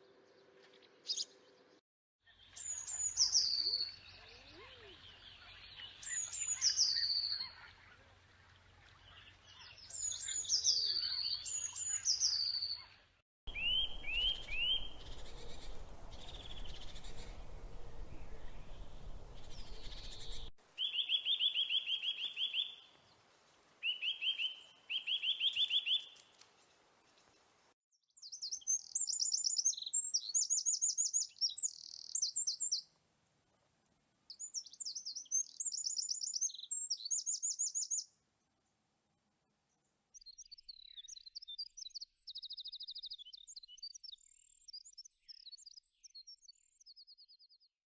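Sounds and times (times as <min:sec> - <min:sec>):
small birds trilling: 0:02.4 - 0:22.9.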